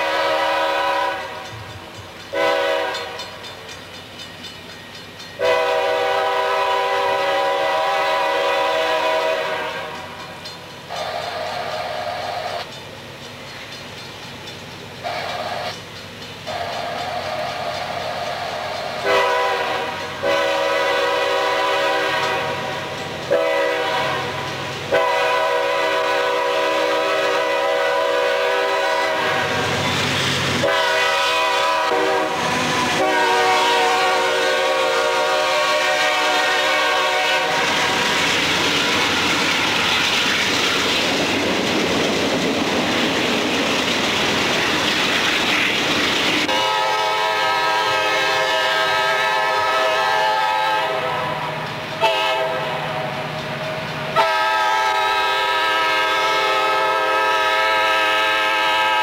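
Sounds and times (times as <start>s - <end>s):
locomotive air horn blasts: 0.0s - 1.5s, 2.3s - 3.4s, 5.4s - 10.1s, 10.9s - 12.6s, 15.0s - 15.7s, 16.5s - 29.8s, 30.6s - 38.1s, 46.5s - 53.1s, 54.2s - 59.0s
wheels clattering over rail joints: 0.2s - 6.1s, 9.0s - 25.8s, 29.0s - 47.3s.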